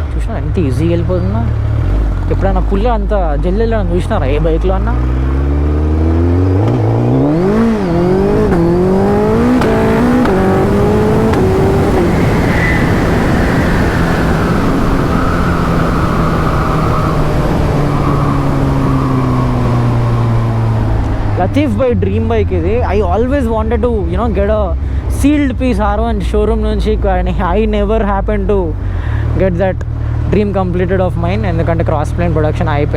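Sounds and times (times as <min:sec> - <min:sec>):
motorcycle engine revving with upshifts: 0:00.0 - 0:23.3
heavy wind noise: 0:00.0 - 0:32.9.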